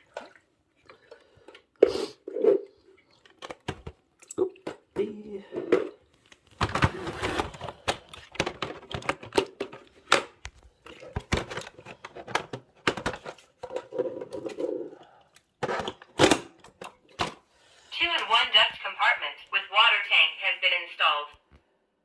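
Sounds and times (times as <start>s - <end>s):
plastic parts clicking and knocking: 3.2s - 17.4s.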